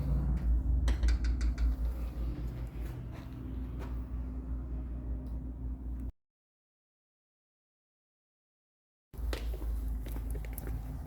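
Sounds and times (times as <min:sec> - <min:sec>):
low steady rumble: 0:00.0 - 0:06.1.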